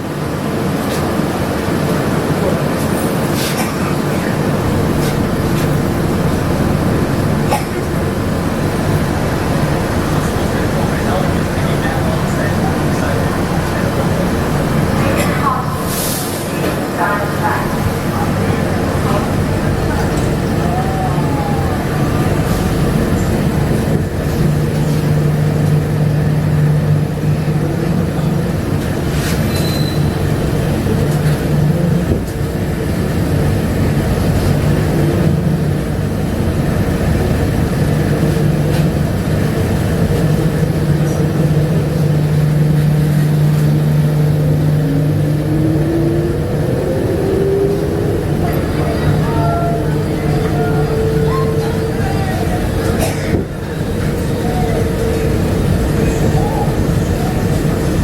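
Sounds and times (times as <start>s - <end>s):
train tyres rumbling: 0.0s - 58.0s
rising whine: 43.4s - 52.9s.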